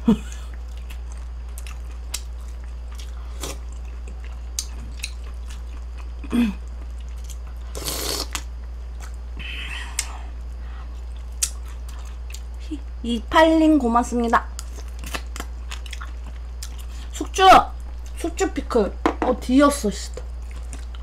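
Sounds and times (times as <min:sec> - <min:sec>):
low electrical hum: 0:00.0 - 0:21.0
person chewing: 0:00.2 - 0:12.6, 0:14.5 - 0:17.1, 0:20.2 - 0:21.0.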